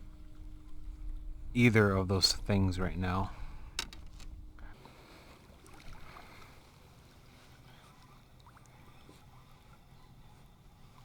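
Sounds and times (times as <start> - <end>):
water lapping against kayak hull: 3.3 - 11.0.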